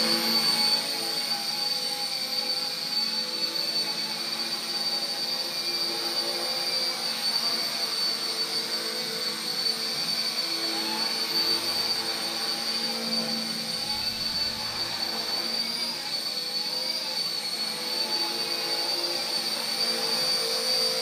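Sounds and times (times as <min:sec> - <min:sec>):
toy helicopter motor whine: 0:00.0 - 0:21.0.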